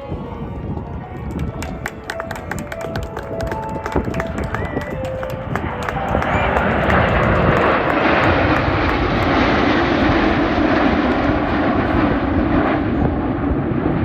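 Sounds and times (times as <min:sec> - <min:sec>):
airplane engine roar: 0:00.0 - 0:14.0.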